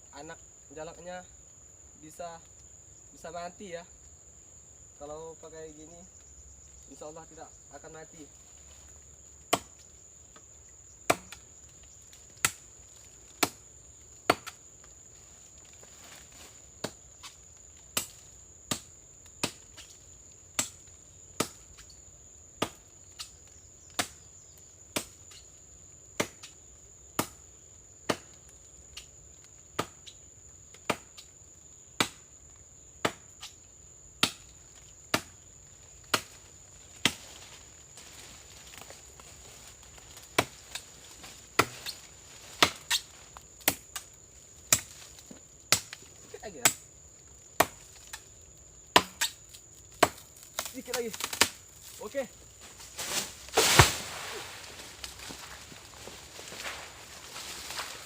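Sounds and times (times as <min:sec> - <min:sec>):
high insect drone: 0:00.0 - 0:58.0
chopping blows into palm trunk: 0:11.1 - 0:11.4, 0:41.6 - 0:42.0, 0:48.9 - 0:49.4, 0:53.0 - 0:55.6.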